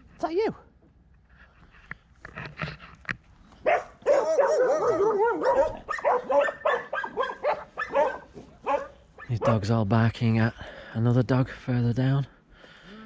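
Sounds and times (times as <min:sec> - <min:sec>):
dogs barking: 0:03.6 - 0:09.6.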